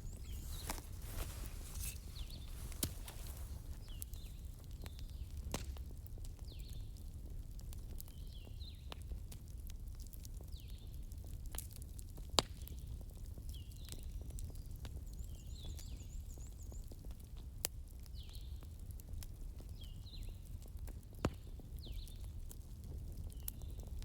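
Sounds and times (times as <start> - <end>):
wood fire crackling: 0.0 - 14.1.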